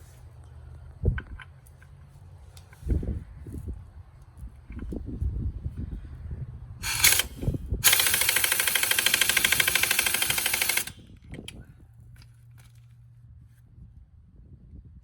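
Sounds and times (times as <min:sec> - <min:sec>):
impact wrench hammering: 0:06.8 - 0:11.0.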